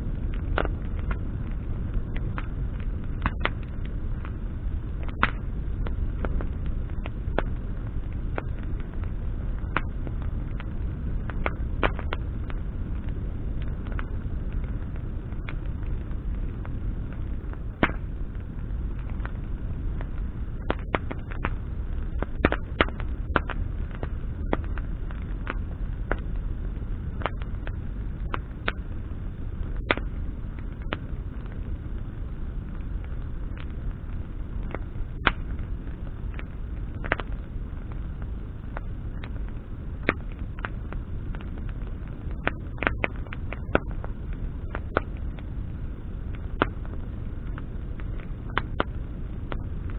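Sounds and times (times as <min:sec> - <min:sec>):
bonfire crackling: 0:00.0 - 0:49.9
steady low rumble: 0:00.0 - 0:49.9.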